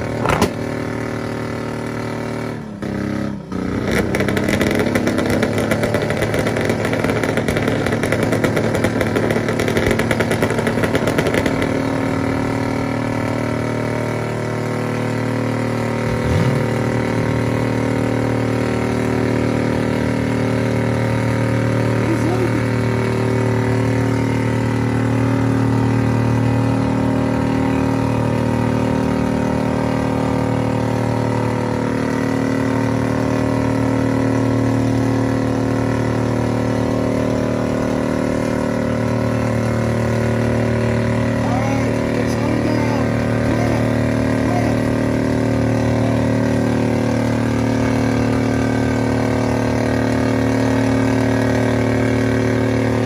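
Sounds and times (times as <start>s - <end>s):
engine revving hard: 0.0s - 53.0s.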